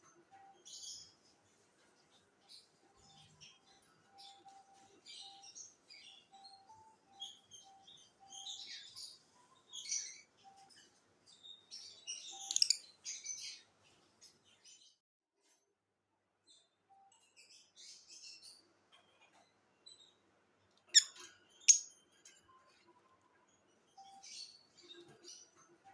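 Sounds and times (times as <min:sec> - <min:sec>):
parrots chirping: 0:11.5 - 0:13.6, 0:20.9 - 0:22.0.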